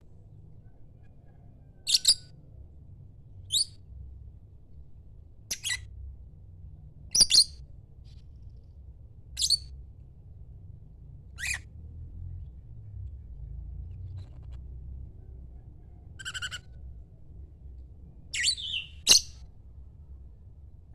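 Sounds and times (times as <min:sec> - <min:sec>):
faint low rumble: 0:00.0 - 0:20.9
lovebird shrill calls: 0:01.9 - 0:02.2, 0:07.2 - 0:07.5, 0:09.4 - 0:09.6, 0:16.2 - 0:16.7, 0:18.4 - 0:19.4.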